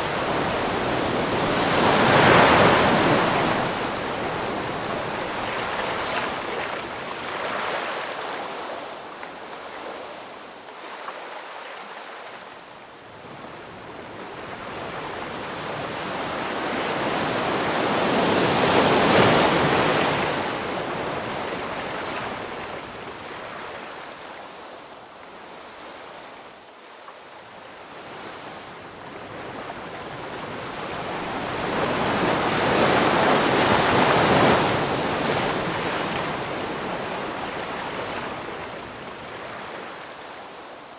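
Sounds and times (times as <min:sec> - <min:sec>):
ocean waves crashing: 0:00.0 - 0:08.8, 0:14.9 - 0:24.1, 0:29.7 - 0:40.7.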